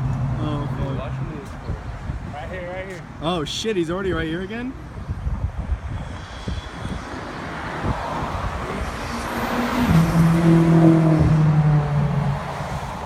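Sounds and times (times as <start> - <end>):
car engine driving past: 6.2 - 13.0.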